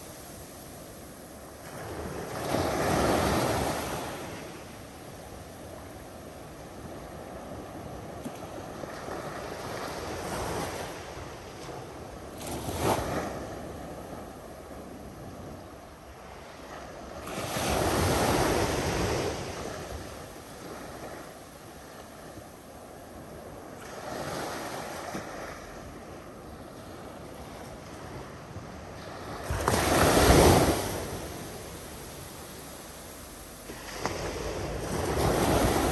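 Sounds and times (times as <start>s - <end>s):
ocean waves washing in: 23.2s - 35.9s.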